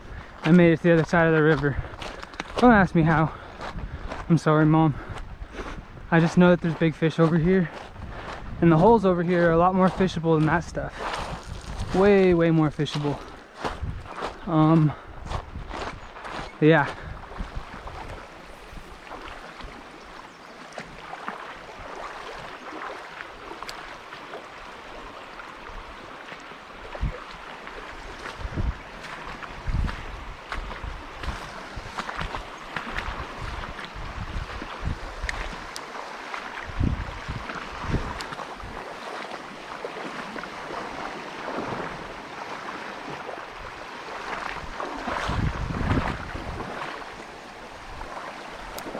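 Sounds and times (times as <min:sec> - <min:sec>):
wind thumps on microphone: 0:07.8 - 0:12.4, 0:13.6 - 0:19.8, 0:28.1 - 0:35.7, 0:36.6 - 0:38.8, 0:44.4 - 0:46.9
river water rushing: 0:16.6 - 0:48.9.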